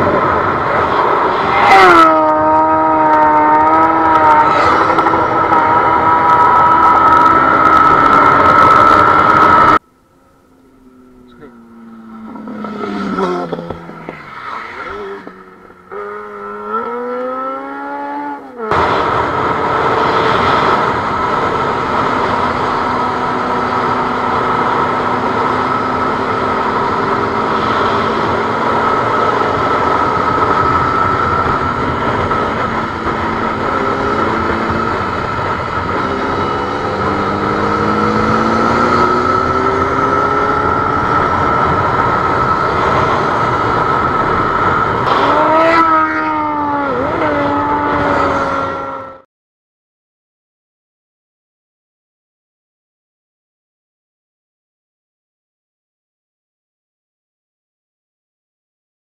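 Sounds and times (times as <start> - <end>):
motorcycle engine revving: 0.0 - 9.8, 10.5 - 49.2
rushing wind noise: 0.0 - 9.8, 18.6 - 49.1.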